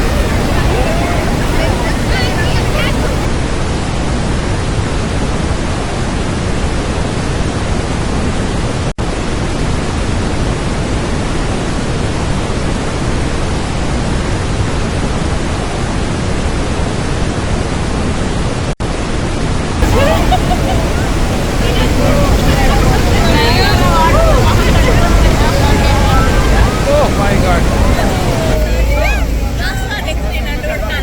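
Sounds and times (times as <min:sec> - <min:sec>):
waterfall roaring: 0:00.0 - 0:03.8, 0:19.8 - 0:31.0
wind on microphone: 0:00.0 - 0:18.6, 0:19.8 - 0:31.0.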